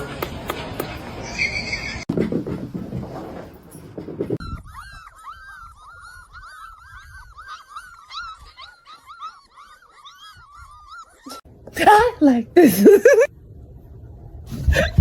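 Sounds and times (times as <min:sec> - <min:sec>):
dog yelping: 0:04.4 - 0:11.4.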